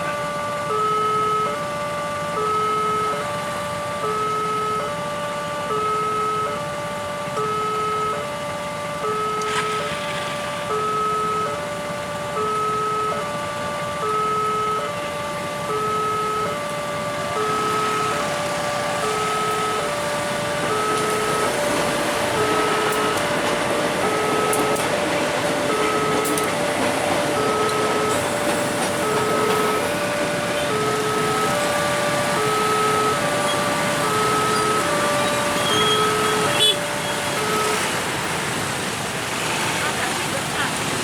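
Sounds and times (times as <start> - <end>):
level crossing two-tone alarm: 0.0 - 40.2
road vehicle engines: 0.0 - 41.0.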